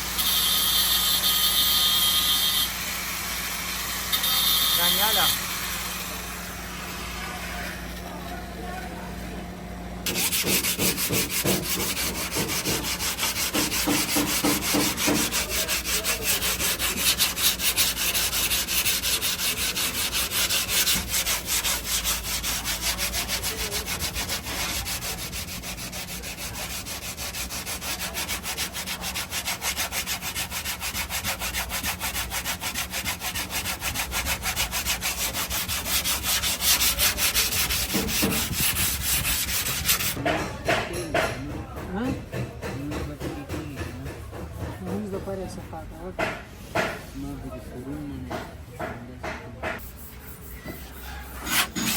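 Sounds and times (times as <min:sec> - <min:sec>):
sanding car body panel: 0:04.4 - 0:06.2, 0:10.0 - 0:40.2, 0:42.8 - 0:48.4, 0:49.8 - 0:51.9.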